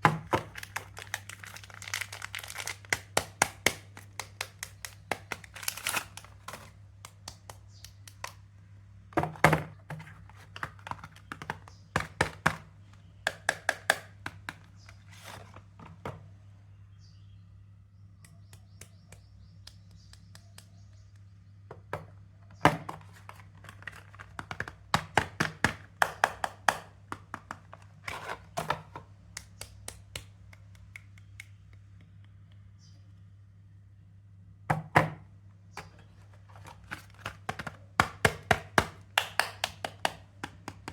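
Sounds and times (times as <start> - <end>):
soap wrappers tapped and handled: 0.0 - 8.5, 9.2 - 16.2, 18.2 - 32.6, 35.8 - 40.9
faint low hum: 27.0 - 38.0.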